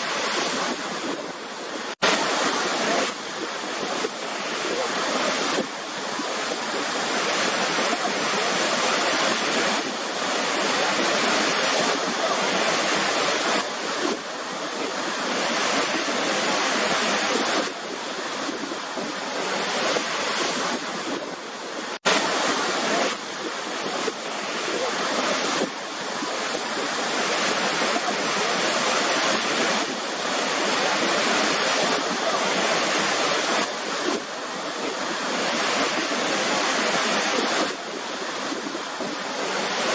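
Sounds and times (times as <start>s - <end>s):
waterfall crashing: 0.0s - 39.9s.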